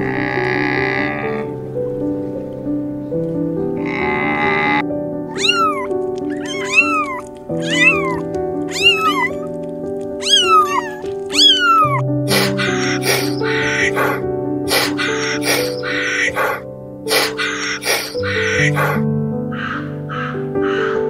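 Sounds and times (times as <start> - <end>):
soft piano music: 0.0 - 21.0
kitten meowing: 4.0 - 19.0.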